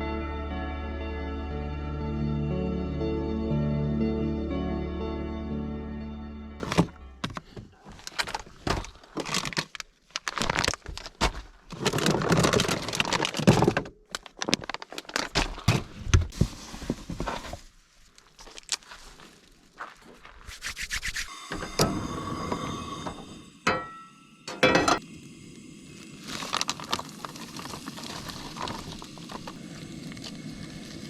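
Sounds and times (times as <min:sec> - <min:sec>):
background music: 0:00.0 - 0:07.3
rustling and crinkling: 0:06.6 - 0:21.3, 0:26.2 - 0:31.0.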